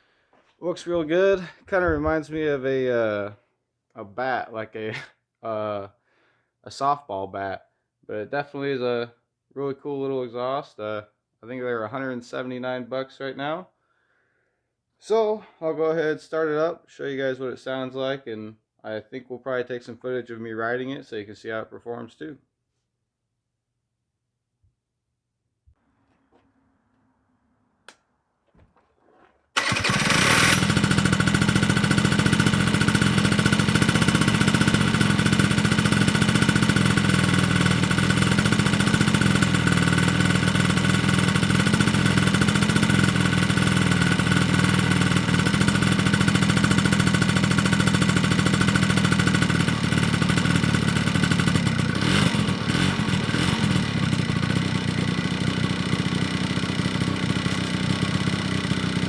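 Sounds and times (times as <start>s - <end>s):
scooter engine starting and idling: 28.4s - 59.0s.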